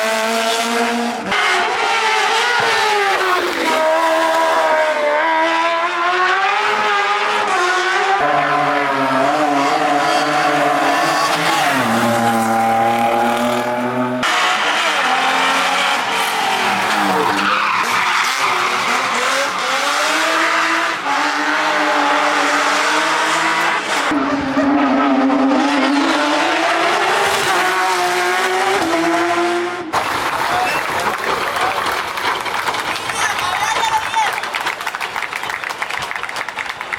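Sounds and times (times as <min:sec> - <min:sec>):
race car engines revving: 0:00.0 - 0:36.9
tyre squeal: 0:09.4 - 0:12.5.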